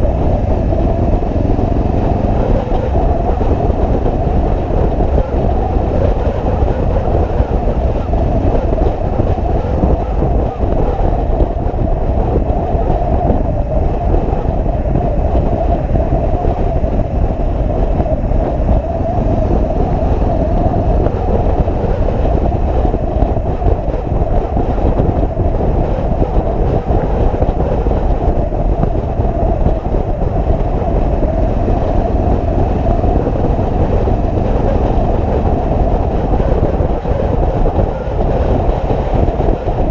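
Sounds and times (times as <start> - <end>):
wind and road noise: 0.0 - 39.9
motorcycle engine: 0.1 - 10.2, 30.6 - 36.6.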